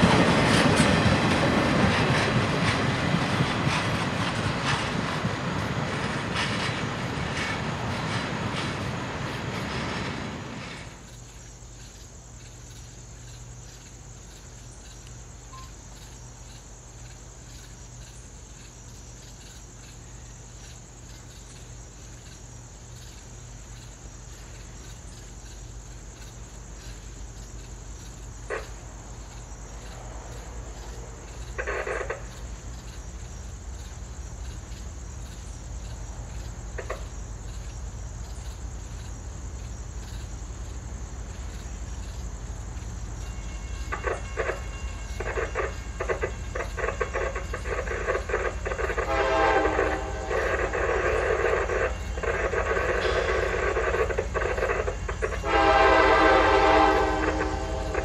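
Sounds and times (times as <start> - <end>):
crickets chirring: 0.0 - 58.0
freight train cars rolling on rails: 0.0 - 58.0
brief horn note: 55.4 - 58.0.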